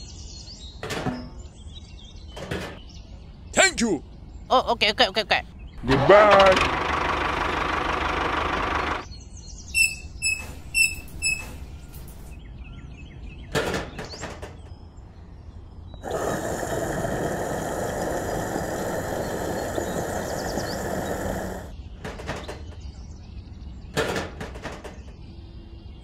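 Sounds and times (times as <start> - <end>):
steady mechanical running noise: 5.8 - 9.1, 9.7 - 12.4, 16.0 - 21.8
short high chirps: 9.7 - 12.3.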